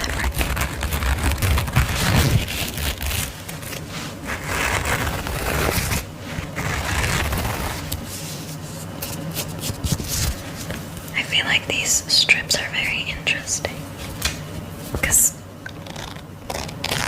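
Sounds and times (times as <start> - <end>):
hands rustling fabric: 0.0 - 11.2.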